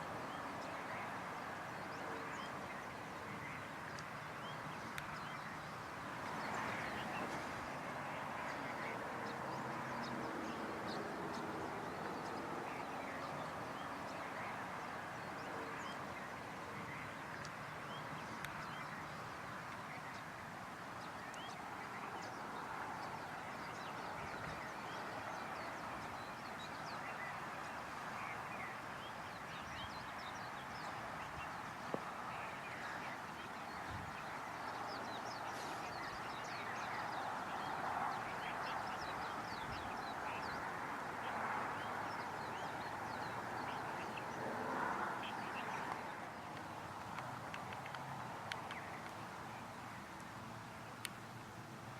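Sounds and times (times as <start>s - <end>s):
birds chirping: 0.0s - 51.5s
steady hiss: 27.2s - 40.7s.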